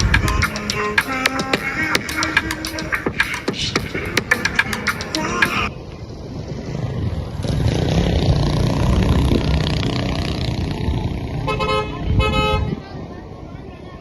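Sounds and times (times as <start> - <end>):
motor vehicle engine rumble: 0.0 - 14.0
vehicle horn toots: 11.5 - 12.7.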